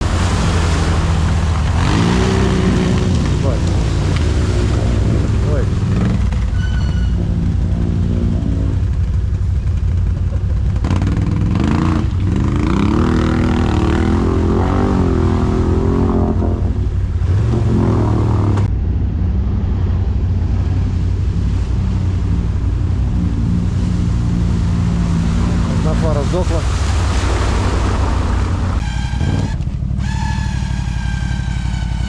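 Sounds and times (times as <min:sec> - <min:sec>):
quad bike engine revving: 0:00.0 - 0:18.7.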